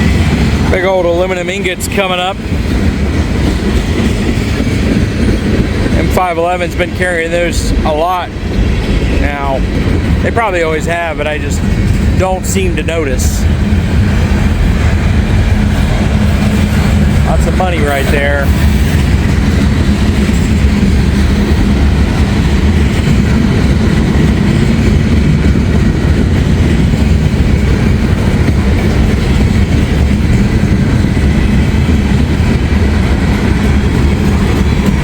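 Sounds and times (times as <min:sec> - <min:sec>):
freight train wheels rumbling on rails: 0:00.0 - 0:35.0.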